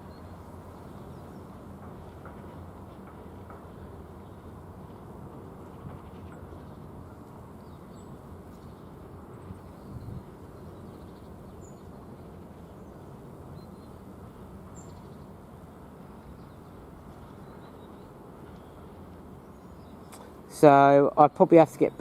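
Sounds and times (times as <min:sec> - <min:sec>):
distant freight train rumbling: 0:00.0 - 0:22.0.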